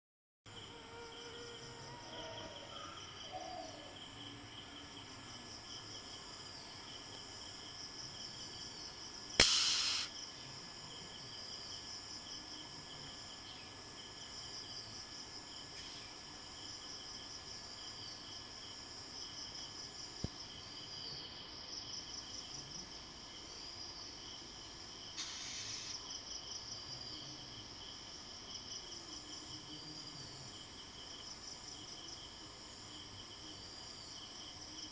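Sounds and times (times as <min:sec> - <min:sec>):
insects chirring: 0:00.5 - 0:34.9
sharp knock: 0:09.4 - 0:10.1
short hiss: 0:09.4 - 0:10.1, 0:25.2 - 0:26.0.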